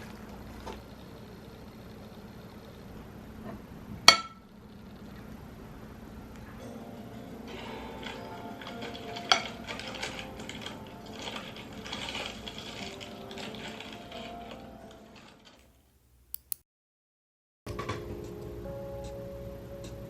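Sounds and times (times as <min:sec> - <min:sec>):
soft background music: 0:06.6 - 0:15.6, 0:17.7 - 0:20.0
objects clicking and clattering: 0:08.0 - 0:15.7.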